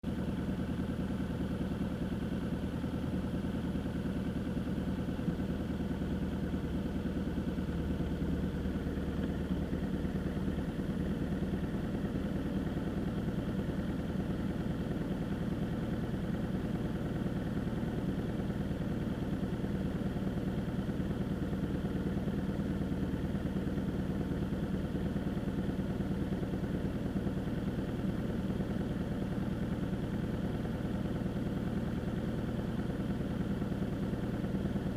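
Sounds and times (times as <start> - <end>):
vehicle engine humming: 0.0 - 24.0.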